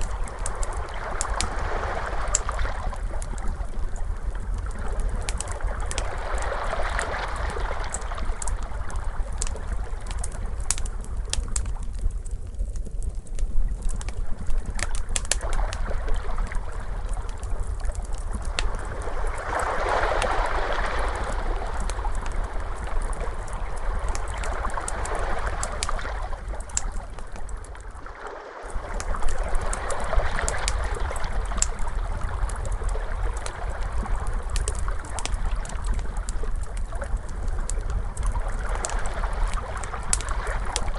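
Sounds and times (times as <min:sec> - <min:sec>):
wood fire crackling and popping: 0:00.0 - 0:28.0, 0:28.7 - 0:40.9
ocean waves washing: 0:18.7 - 0:27.0.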